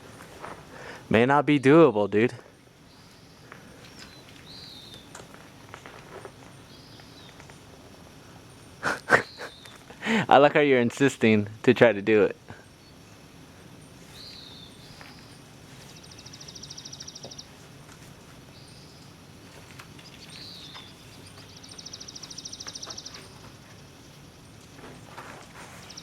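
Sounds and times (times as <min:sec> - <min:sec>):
outdoor hiss: 0:00.0 - 0:26.0
songbird whistle and trill: 0:02.9 - 0:05.2, 0:14.0 - 0:17.6, 0:20.0 - 0:23.5.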